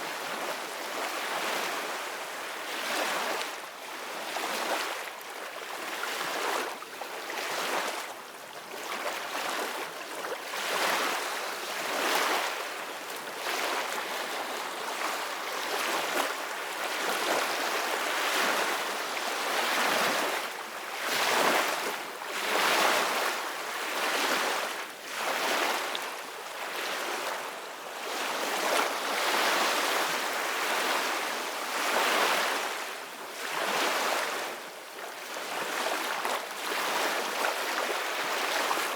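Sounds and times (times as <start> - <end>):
ocean waves breaking on shore: 10.4 - 38.9.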